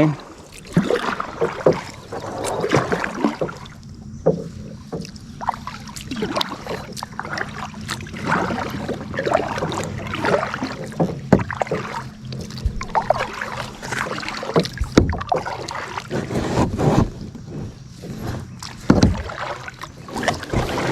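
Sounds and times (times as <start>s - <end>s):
water dripping: 0.0s - 16.1s
paddle splashing in water: 0.0s - 20.9s
steady low hum: 0.0s - 20.9s
sharp knocks: 3.4s - 5.2s, 14.6s - 15.4s, 18.9s - 19.3s.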